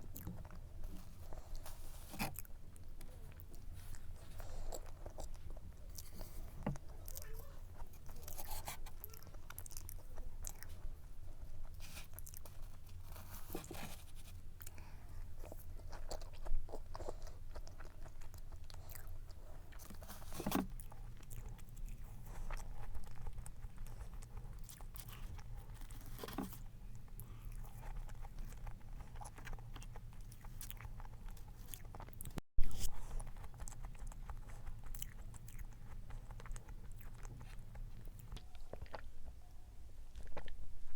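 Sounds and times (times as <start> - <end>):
person chewing cake: 0.0 - 39.5, 40.1 - 40.8
low steady hum: 0.0 - 40.9.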